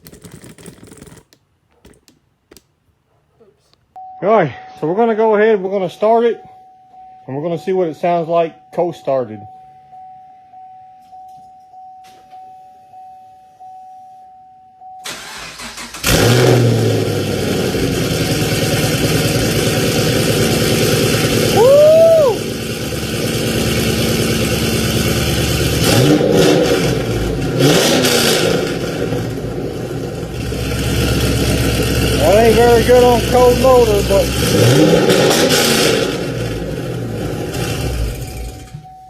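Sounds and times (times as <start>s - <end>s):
starter cranking: 0.0s - 2.2s
car engine idling: 16.2s - 25.8s, 28.6s - 34.5s.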